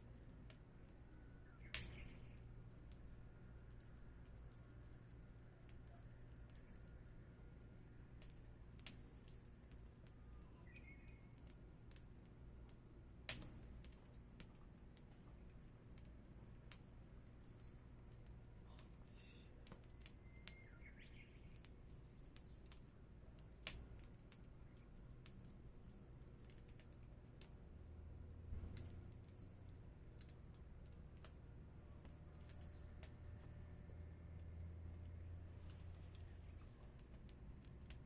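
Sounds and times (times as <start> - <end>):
wood fire crackling and popping: 0.0 - 38.0
faint bird chirps: 1.0 - 2.6, 9.0 - 11.5, 17.4 - 18.0, 18.6 - 22.8, 25.8 - 26.6.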